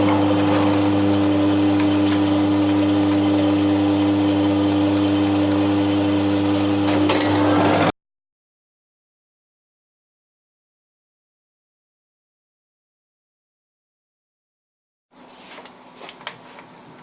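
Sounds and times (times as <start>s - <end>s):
milling machine humming: 0.0s - 7.9s.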